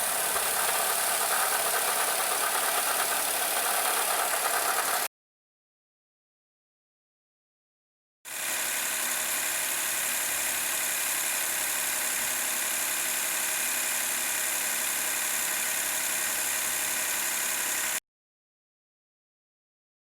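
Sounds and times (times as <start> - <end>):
car engine idling: 0.0 - 5.1.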